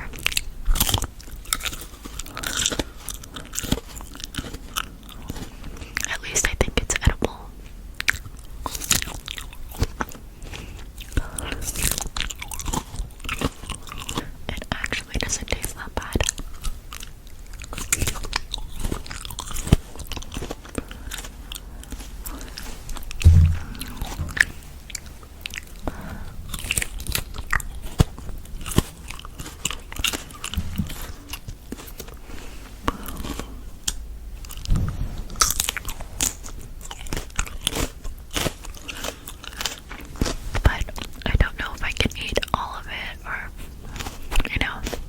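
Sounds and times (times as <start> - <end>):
crunchy bites and chewing: 0.1 - 6.1, 7.9 - 14.4, 16.0 - 41.2
low thuds: 23.1 - 25.1, 30.5 - 31.2.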